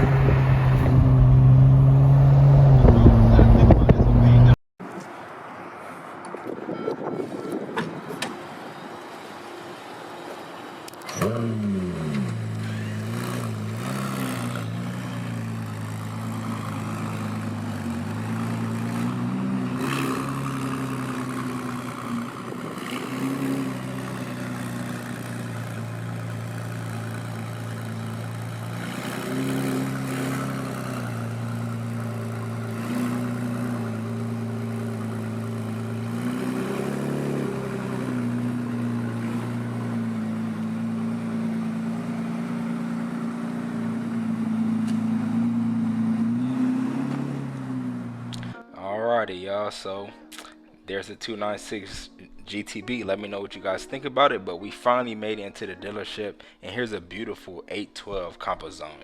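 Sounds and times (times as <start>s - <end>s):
car engine starting and idling: 0.0s - 4.6s, 10.9s - 48.6s.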